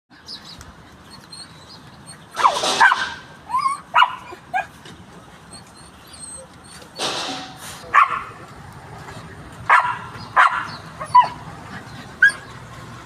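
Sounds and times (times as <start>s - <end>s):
dog barking and yipping: 2.3s - 4.8s, 7.9s - 8.4s, 9.7s - 11.4s, 12.2s - 12.5s.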